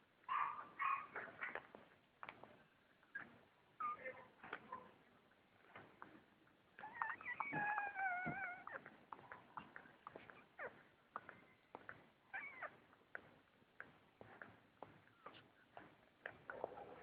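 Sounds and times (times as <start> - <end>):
puppies whining and squealing: 3.1 - 4.4, 6.8 - 9.3, 10.2 - 10.8, 12.3 - 12.8.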